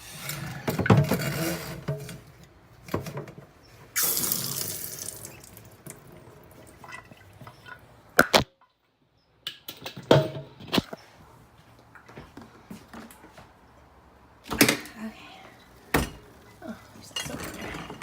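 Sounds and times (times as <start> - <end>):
water rushing in a dishwasher: 4.0 - 7.9, 15.6 - 18.0.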